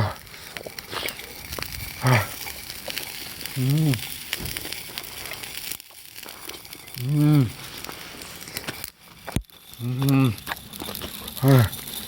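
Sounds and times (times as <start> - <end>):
man making low voice sounds: 0.0 - 0.3, 2.0 - 2.4, 3.6 - 4.1, 7.0 - 7.6, 9.8 - 10.5, 11.4 - 11.8
campfire wood crackling: 0.0 - 12.0
food sizzling: 0.0 - 12.0.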